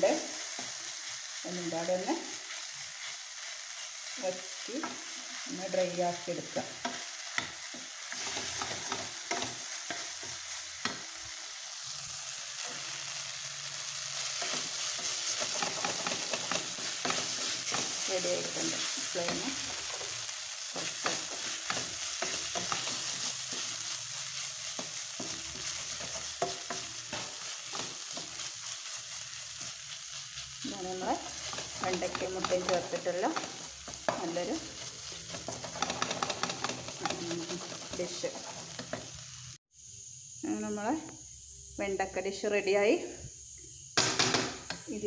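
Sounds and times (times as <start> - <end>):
stir-fry sizzling in a pan: 0.0 - 45.0
spatula scraping a pan: 6.8 - 11.0, 12.6 - 30.5, 31.1 - 39.3.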